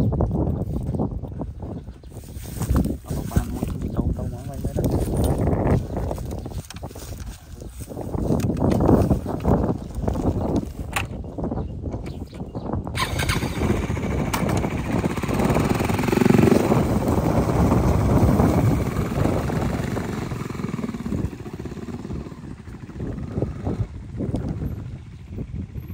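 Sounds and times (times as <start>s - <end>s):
motorcycle engine revving: 13.0s - 25.9s.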